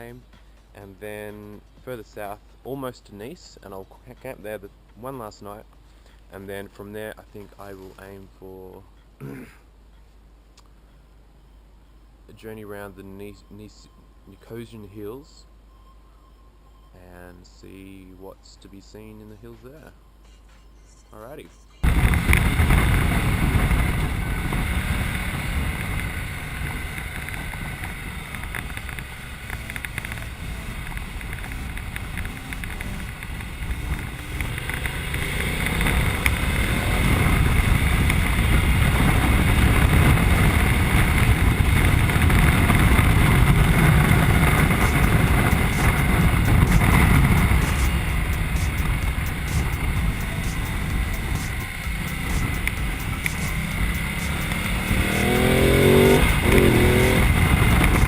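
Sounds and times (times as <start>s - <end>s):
motorcycle engine rumbling: 21.8s - 58.0s
wind noise on microphone: 21.8s - 58.0s.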